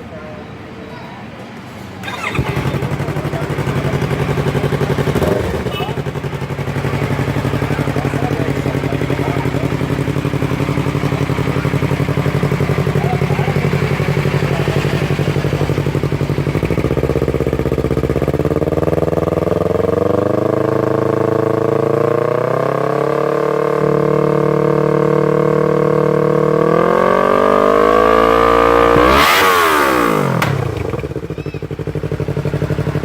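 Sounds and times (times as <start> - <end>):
motorcycle engine revving: 2.0 - 33.0.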